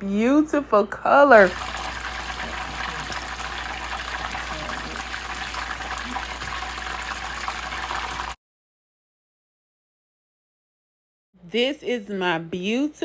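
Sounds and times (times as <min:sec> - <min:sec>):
food deep frying in oil: 0:01.3 - 0:08.4.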